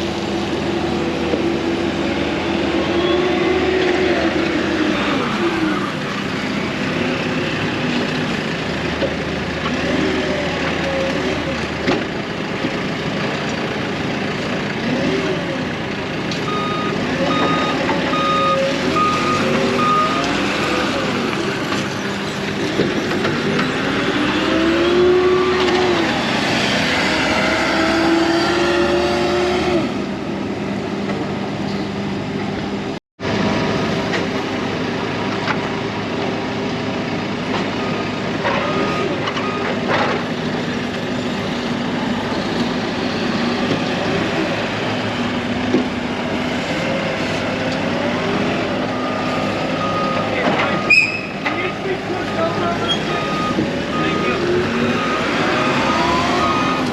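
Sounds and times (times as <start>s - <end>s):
heavy vehicle engines revving: 0.0s - 56.9s
reversing beeper: 16.5s - 21.0s, 48.8s - 51.4s, 52.1s - 56.9s.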